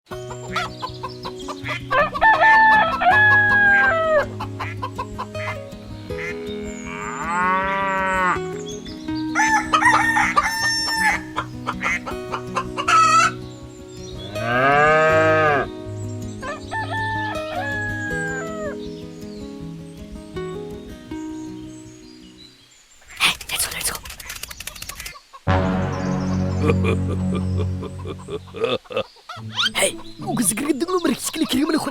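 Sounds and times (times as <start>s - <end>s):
background music: 0.1s - 22.4s, 25.5s - 28.8s, 29.4s - 31.9s
rooster crowing: 1.9s - 4.2s, 9.4s - 11.3s, 16.4s - 18.7s
farm animal calls: 29.3s - 31.9s.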